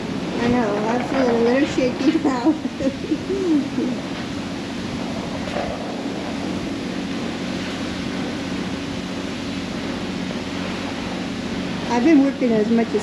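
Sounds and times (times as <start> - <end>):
car wash machine drone: 0.0 - 13.0
water spraying: 0.0 - 13.0.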